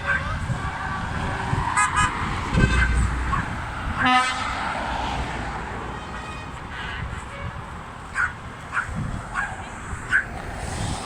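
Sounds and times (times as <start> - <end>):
tractor engines running: 0.0 - 4.8
tractor horns tooting: 1.8 - 4.8, 5.8 - 8.3.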